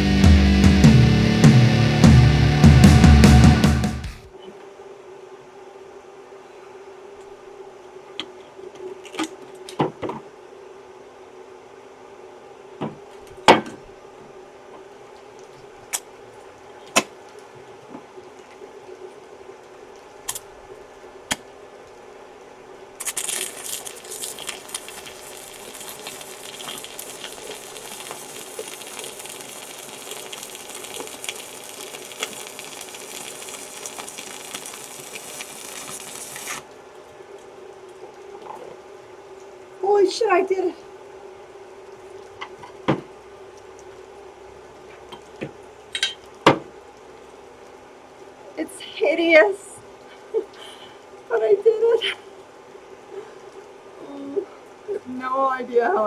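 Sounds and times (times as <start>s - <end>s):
welding arc crackling: 23.0s - 36.7s.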